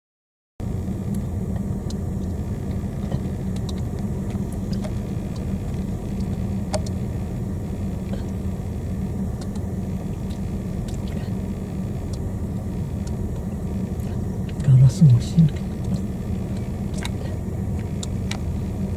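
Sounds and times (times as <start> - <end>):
car idling: 0.6 - 18.9
faint high ticks: 6.2 - 7.0, 9.4 - 11.2.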